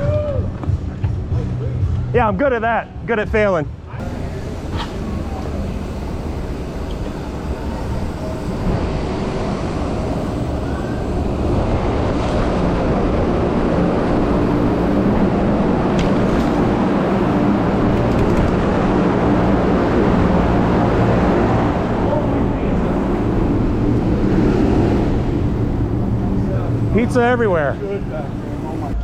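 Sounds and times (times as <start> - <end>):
tyre and road noise: 0.0 - 29.0.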